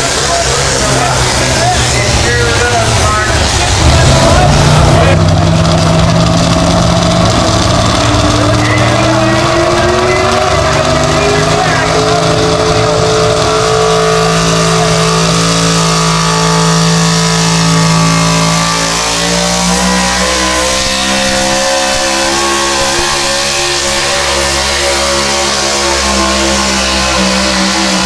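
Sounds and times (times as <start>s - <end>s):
vehicle engine revving high: 0.0s - 28.0s.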